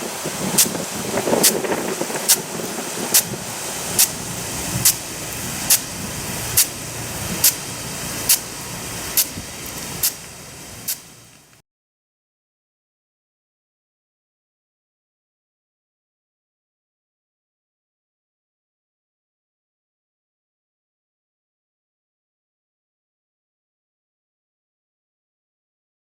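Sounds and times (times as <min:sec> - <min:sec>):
spray hissing: 0:00.0 - 0:11.6
sprinkler arm clacking: 0:00.6 - 0:11.6.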